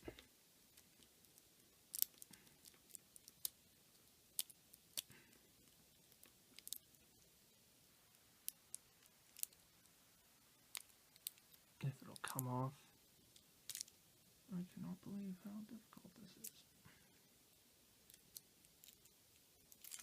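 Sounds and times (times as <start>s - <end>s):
plastic clicks and crinkles: 0.0s - 3.6s, 4.3s - 7.1s, 8.4s - 9.6s, 10.7s - 12.5s, 13.3s - 14.0s, 18.1s - 20.0s.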